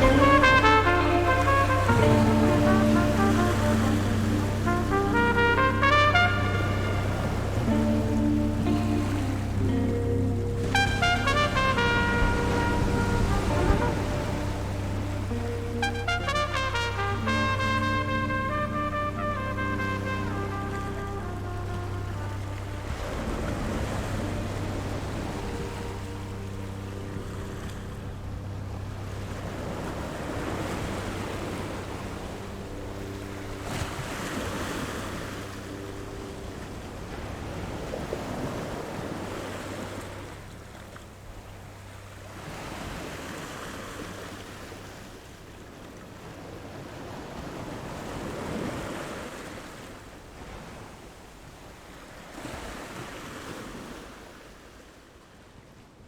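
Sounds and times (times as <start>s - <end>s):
low steady hum: 0.0s - 43.0s
sea waves washing in: 0.0s - 55.7s.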